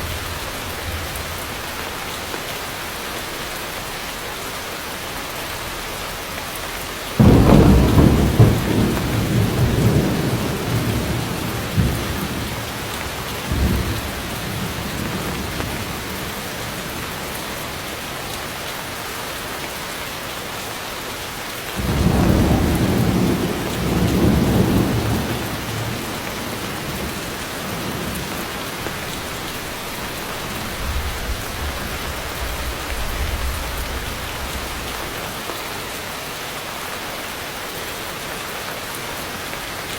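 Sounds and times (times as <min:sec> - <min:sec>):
heavy rain: 0:00.0 - 0:39.9
thunder claps rolling: 0:07.2 - 0:17.8, 0:21.8 - 0:35.2.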